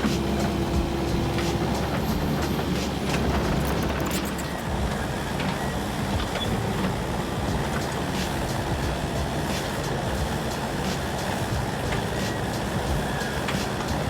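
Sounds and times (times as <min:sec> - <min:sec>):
heavy machinery engine running: 0:00.0 - 0:14.0.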